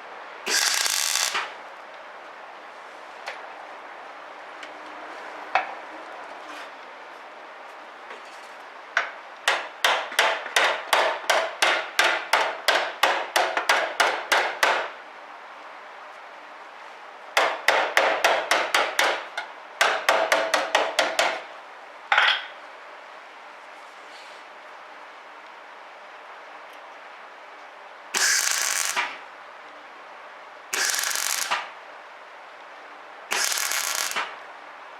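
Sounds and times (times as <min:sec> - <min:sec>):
hammer on sheet steel: 0:09.5 - 0:14.9.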